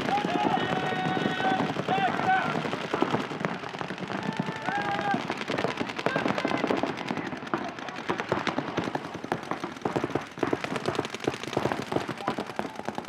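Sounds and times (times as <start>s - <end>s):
paintball guns firing: 0.0s - 13.0s.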